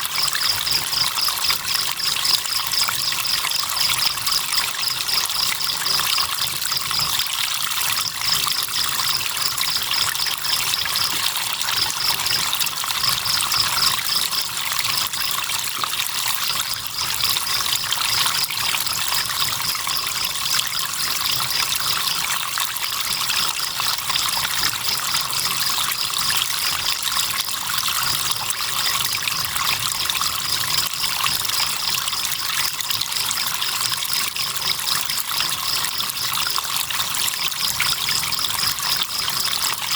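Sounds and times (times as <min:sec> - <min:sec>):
river water trickling: 0:00.0 - 0:39.9
crickets chirping: 0:00.1 - 0:07.2, 0:07.9 - 0:22.3, 0:34.3 - 0:39.9.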